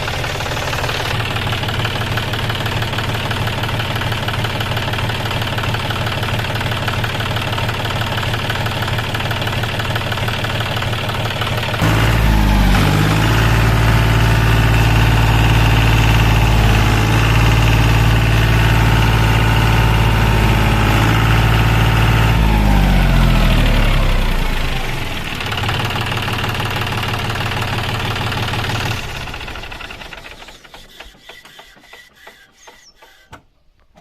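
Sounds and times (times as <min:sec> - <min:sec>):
tractor diesel engine running: 0:00.0 - 0:31.3.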